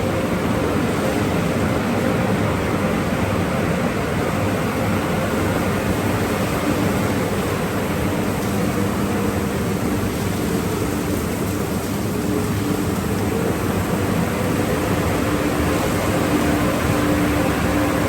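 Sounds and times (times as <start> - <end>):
car wash equipment rushing: 4.4 - 18.0.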